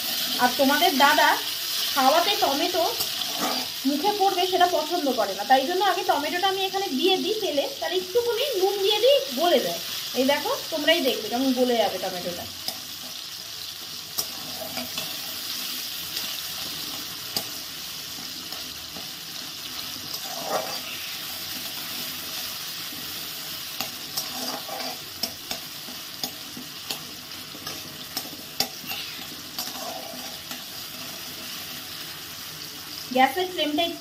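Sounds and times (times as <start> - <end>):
tomato sizzling in hot oil: 0.0 - 34.0
spatula scraping a pan: 3.0 - 3.8, 14.2 - 15.5, 19.8 - 21.9, 23.7 - 31.7.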